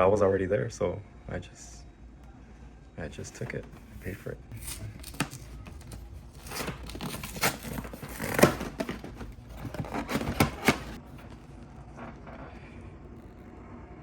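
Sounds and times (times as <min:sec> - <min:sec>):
packaging torn and crinkled: 0:04.5 - 0:11.0.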